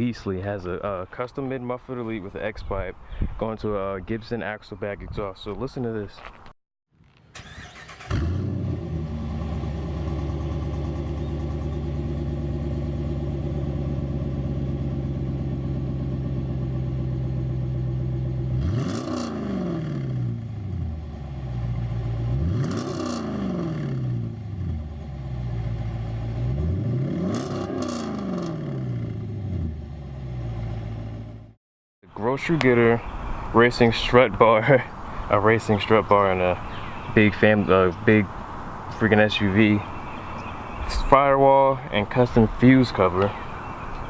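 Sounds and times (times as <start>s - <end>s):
loud engine idling and revving: 7.4s - 31.6s.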